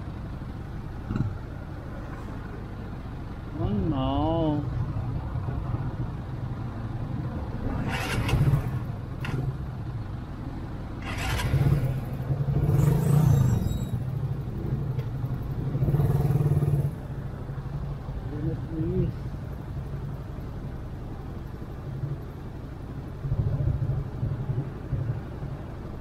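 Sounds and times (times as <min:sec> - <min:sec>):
surrounding vehicle engines: 0:00.0 - 0:26.0
motorcycle engine rumbling: 0:07.7 - 0:10.0, 0:11.0 - 0:17.4.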